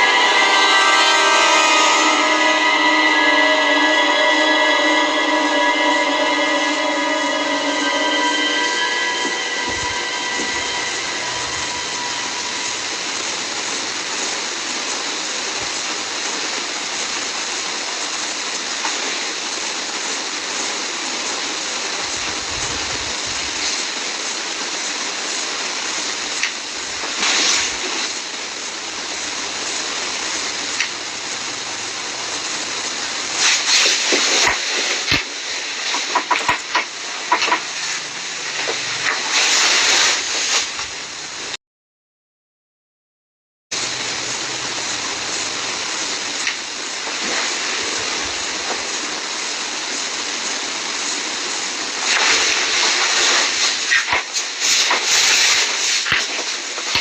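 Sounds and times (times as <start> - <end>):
steady hissing noise: 0.0 - 41.6, 43.8 - 57.0
crackling and knocking: 33.4 - 41.0, 52.0 - 57.0.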